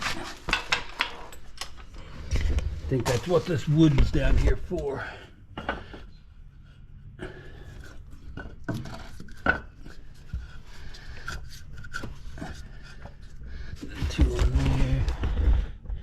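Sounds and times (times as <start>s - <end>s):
parts knocking and clinking: 0.0s - 1.9s
steady low hum: 0.0s - 16.0s.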